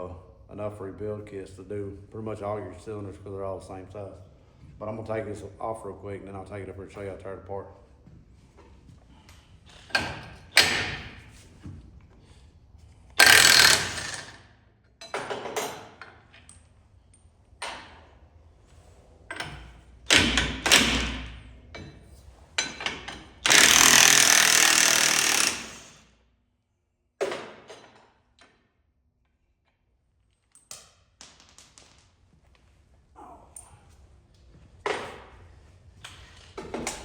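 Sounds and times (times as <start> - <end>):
impact wrench bursts: 13.2 - 14.5, 23.2 - 26.1.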